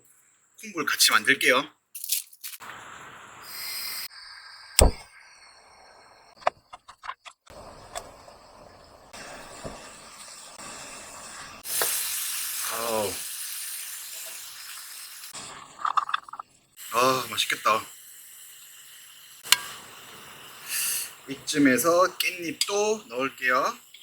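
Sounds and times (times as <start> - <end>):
food sizzling in a hot pan: 2.6 - 4.8, 7.5 - 16.0, 16.7 - 24.0.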